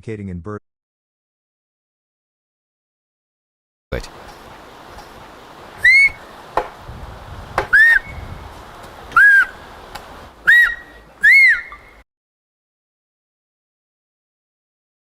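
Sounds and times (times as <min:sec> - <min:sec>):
whistled speech: 0:10.5 - 0:12.0.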